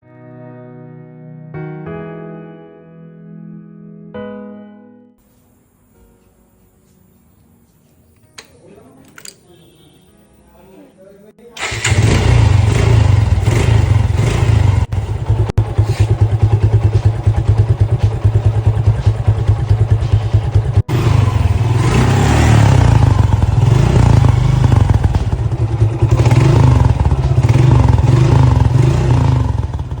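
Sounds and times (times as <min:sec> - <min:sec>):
motorcycle engine revving: 0:11.6 - 0:30.0.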